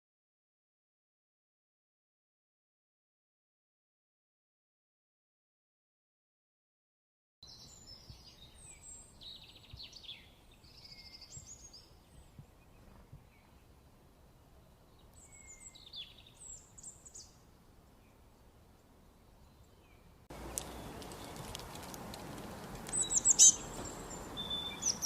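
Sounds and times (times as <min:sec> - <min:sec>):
songbirds chirping and trilling: 0:07.4 - 0:25.0.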